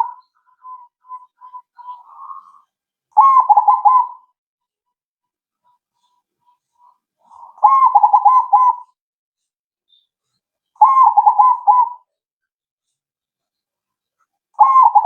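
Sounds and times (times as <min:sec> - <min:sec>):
dove rolling coos: 0:07.5 - 0:08.8, 0:10.8 - 0:12.0.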